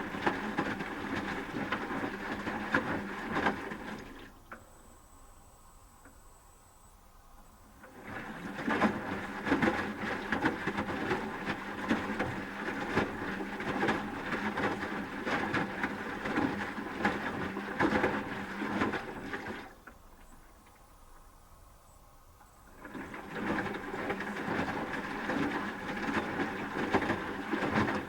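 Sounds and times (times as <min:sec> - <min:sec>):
water sloshing: 0:00.0 - 0:04.6, 0:07.7 - 0:21.3, 0:22.4 - 0:28.0
washing machine motor hum: 0:00.0 - 0:20.0, 0:22.5 - 0:28.0.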